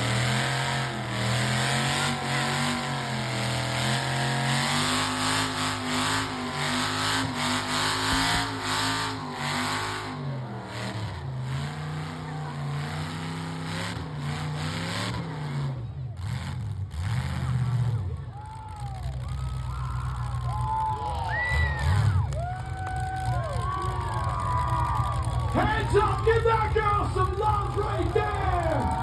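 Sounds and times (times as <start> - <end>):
engine at high revs: 0.0 - 18.3.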